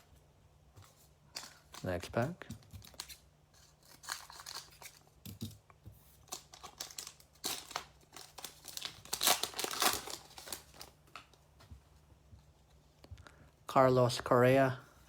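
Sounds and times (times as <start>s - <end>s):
foil wrapper tearing and crinkling: 2.7s - 5.2s, 6.2s - 11.4s.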